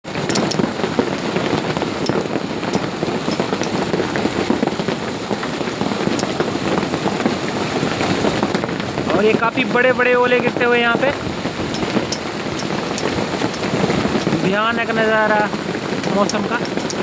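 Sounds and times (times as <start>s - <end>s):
hail and heavy rain pattering: 0.0s - 17.0s.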